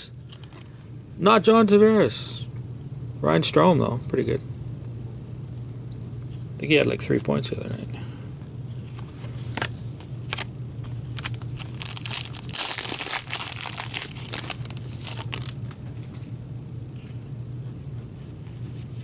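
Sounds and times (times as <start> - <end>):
plastic wrapper crinkling and tearing: 9.6 - 15.6.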